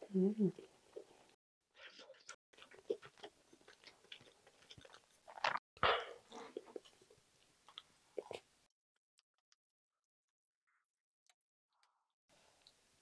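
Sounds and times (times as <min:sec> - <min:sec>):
close-miked chewing: 0:00.5 - 0:05.6, 0:06.2 - 0:08.5.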